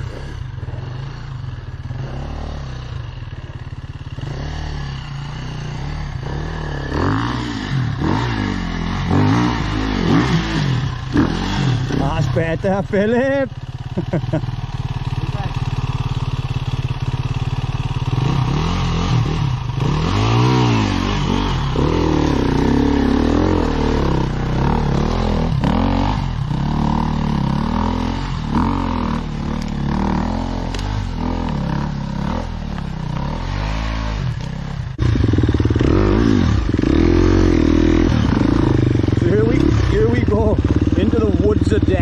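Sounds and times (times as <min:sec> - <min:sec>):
dirt bike engine revving: 0:00.0 - 0:42.0.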